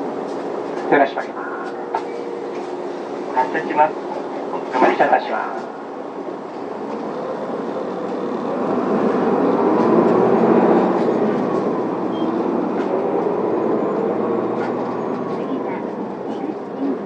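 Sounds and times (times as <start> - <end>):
bus diesel engine revving: 5.9 - 17.0.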